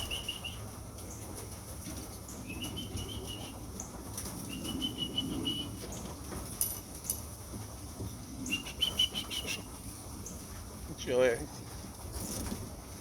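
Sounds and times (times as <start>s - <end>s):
pigeon wings flapping: 0.0s - 7.7s.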